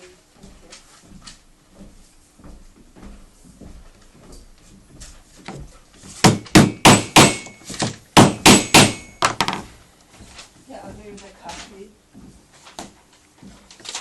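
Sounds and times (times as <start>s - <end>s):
hammer strikes on wood panel: 6.2s - 9.6s.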